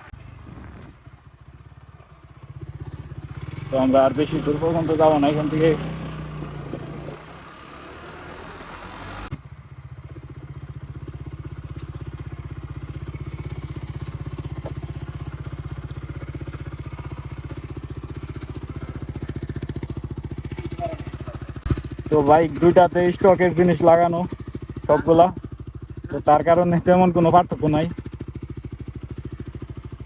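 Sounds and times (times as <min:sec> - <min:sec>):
wind rushing while riding: 0:00.0 - 0:01.5
motorcycle engine idling: 0:00.0 - 0:30.0.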